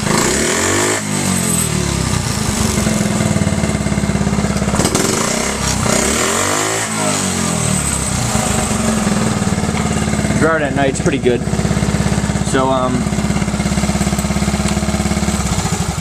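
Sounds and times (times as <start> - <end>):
small motorcycle engine revving: 0.0 - 16.0.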